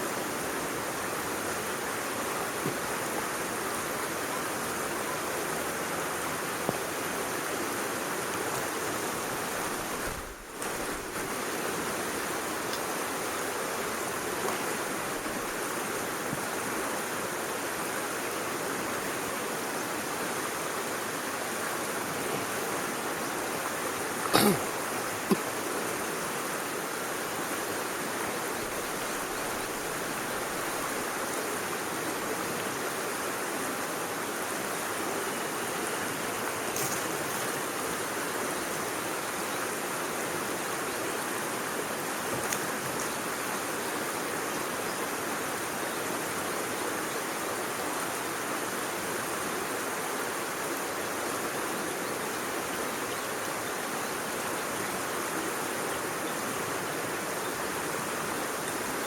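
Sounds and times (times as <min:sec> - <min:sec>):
stream flowing: 0:00.0 - 0:59.0.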